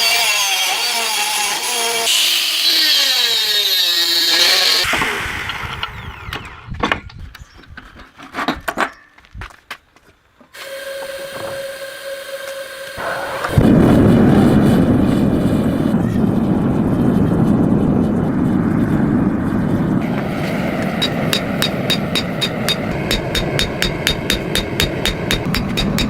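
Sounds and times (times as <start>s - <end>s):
power tool running: 0.0s - 6.7s, 10.6s - 13.6s
knocks: 21.0s - 26.0s.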